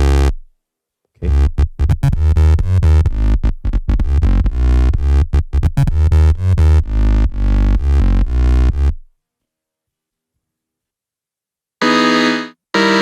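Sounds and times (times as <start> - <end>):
vocal beatbox loops with heavy bass: 0.0 - 0.3, 1.2 - 8.9.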